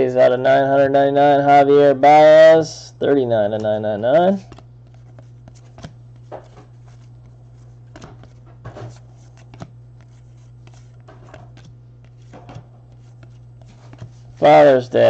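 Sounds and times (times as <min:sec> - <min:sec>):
steady low hum: 0:00.0 - 0:15.0
trading cards rustling and clicking: 0:03.5 - 0:15.0.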